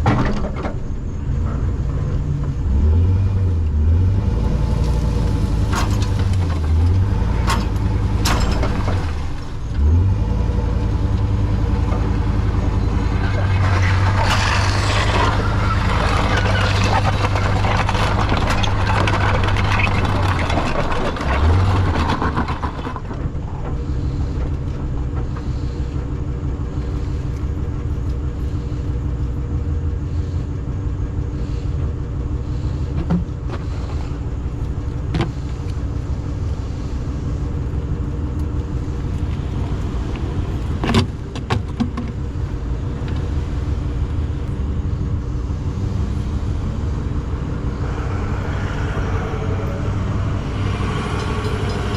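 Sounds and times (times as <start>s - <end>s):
truck engine running: 0.0s - 51.9s
vehicle rushing past: 44.8s - 51.9s.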